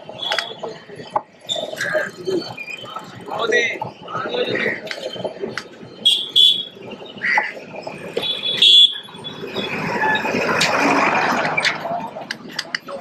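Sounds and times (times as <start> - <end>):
vehicle passing close: 9.2 - 12.4
scattered clicks: 11.4 - 13.0.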